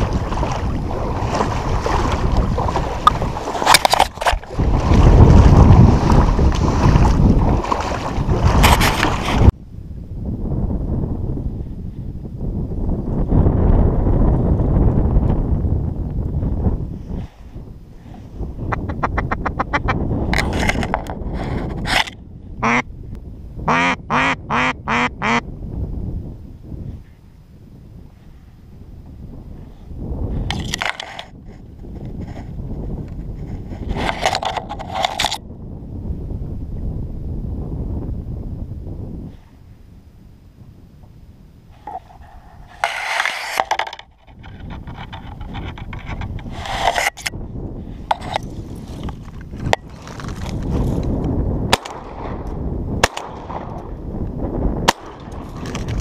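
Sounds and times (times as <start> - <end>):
low wind rumble: 0.0 - 56.0
rustling and scraping: 1.3 - 9.5, 20.3 - 22.2, 30.4 - 35.4, 41.7 - 51.2, 55.4 - 56.0
duck quacking: 18.7 - 20.0, 22.6 - 22.8, 23.7 - 25.4.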